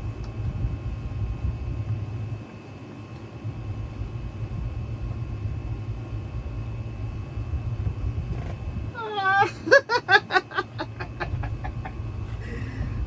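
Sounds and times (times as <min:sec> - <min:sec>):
faint high hum: 0:00.0 - 0:13.0
low uneven rumble: 0:10.3 - 0:13.0.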